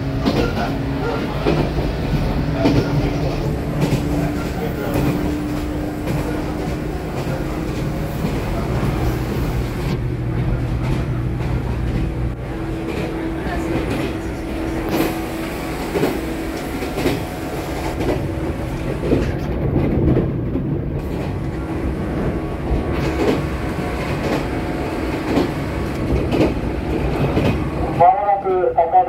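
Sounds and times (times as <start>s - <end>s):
train wheels rumbling: 0.0s - 29.0s
wheel clacks over rail joints: 0.2s - 9.0s, 22.7s - 27.7s.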